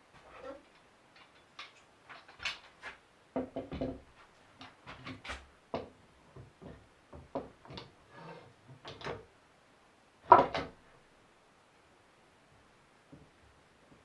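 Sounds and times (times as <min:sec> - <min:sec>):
wood scraping: 0:00.2 - 0:03.0, 0:07.7 - 0:09.1.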